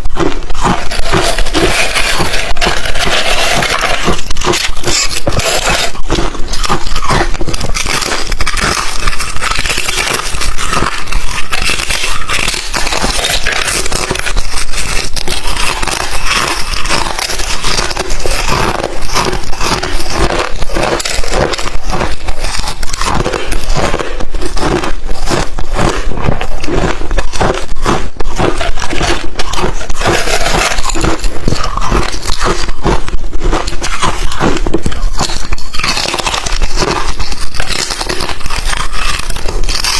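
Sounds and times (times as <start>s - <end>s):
person chewing ice crunching: 0.0s - 39.9s.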